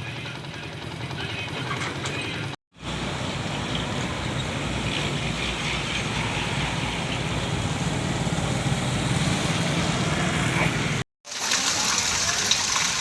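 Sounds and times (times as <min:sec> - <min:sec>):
water and rain noise: 0:11.2 - 0:13.0.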